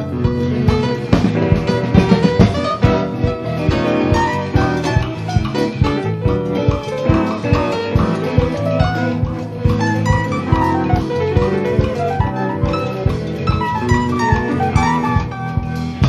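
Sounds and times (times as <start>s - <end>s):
drum kit: 0.0s - 16.0s
electric guitar lead line: 0.0s - 16.0s.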